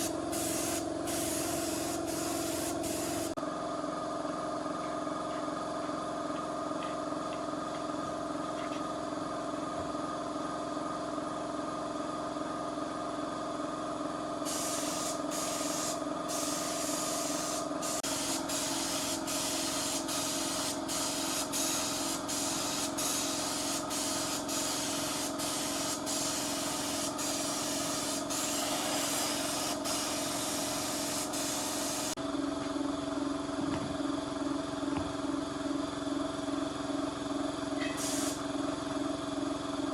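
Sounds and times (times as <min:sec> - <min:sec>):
loud hiss of spraying air: 0:00.0 - 0:03.4, 0:14.5 - 0:32.2, 0:38.0 - 0:38.4
steady machine hum: 0:00.0 - 0:39.9.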